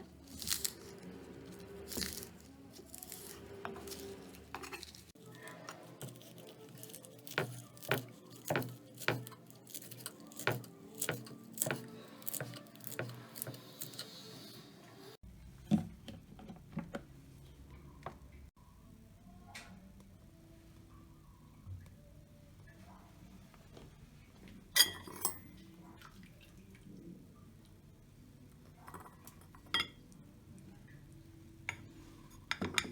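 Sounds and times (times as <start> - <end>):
knife chopping on cutting board: 7.2 - 14.0.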